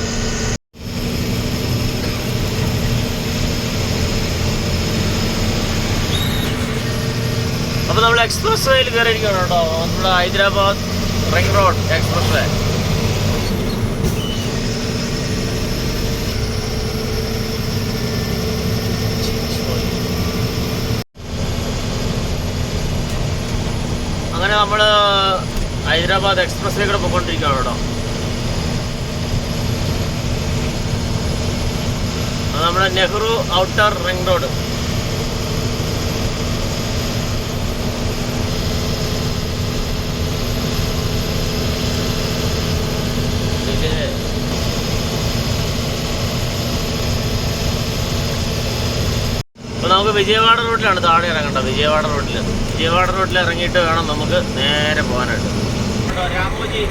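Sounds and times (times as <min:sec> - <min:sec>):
diesel lorry engine running: 0:00.0 - 0:56.9
road noise: 0:00.0 - 0:56.9
steady low hum: 0:00.0 - 0:56.9.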